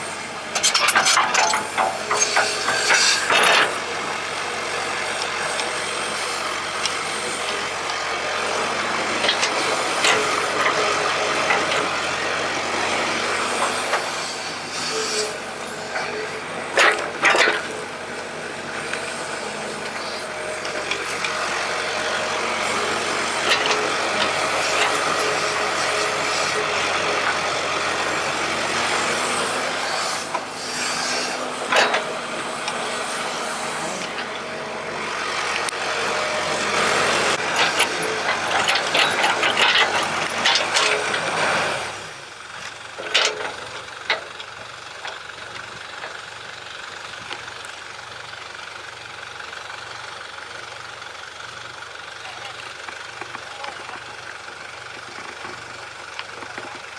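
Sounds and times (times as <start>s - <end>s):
excavator engine running: 0.0s - 56.9s
metal clanking and rattling: 0.5s - 6.4s, 15.2s - 28.3s, 28.9s - 34.6s, 35.3s - 48.2s.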